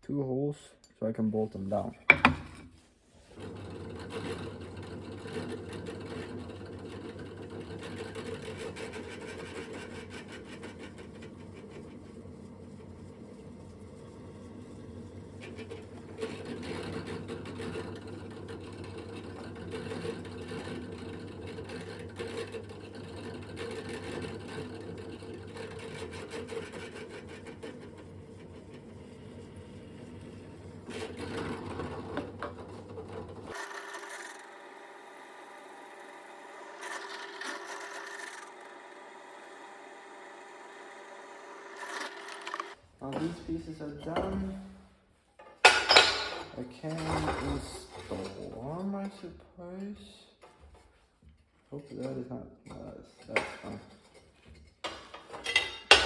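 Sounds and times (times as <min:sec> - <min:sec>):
electric drill drilling steel: 0:33.5 - 0:42.8.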